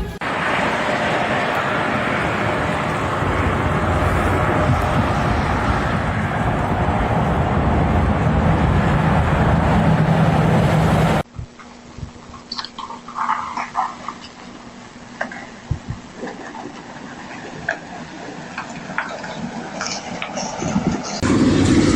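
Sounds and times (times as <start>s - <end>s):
car road and engine noise: 0.0s - 11.3s, 12.8s - 21.9s
low hum: 21.2s - 21.9s.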